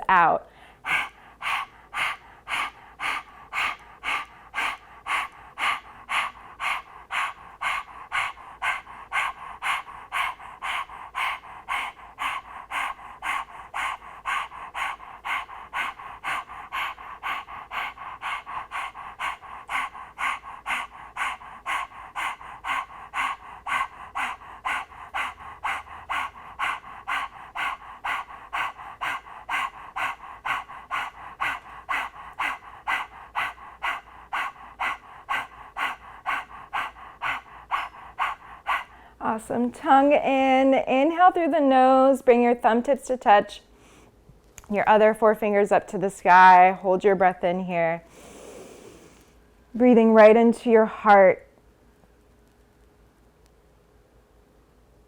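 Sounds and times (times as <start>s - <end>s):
woman panting rapidly: 0.0s - 41.4s, 48.0s - 49.2s.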